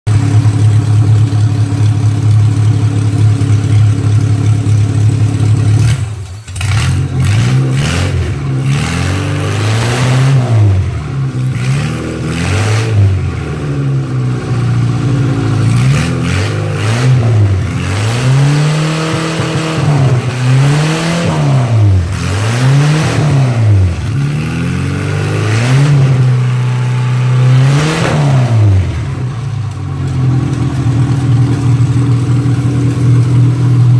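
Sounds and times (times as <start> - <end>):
truck engine revving: 5.0 - 33.9.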